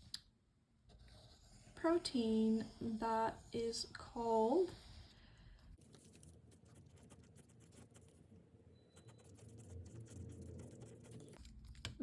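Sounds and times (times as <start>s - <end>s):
pencil writing on paper: 0.9s - 5.2s, 5.8s - 8.2s, 9.0s - 11.5s.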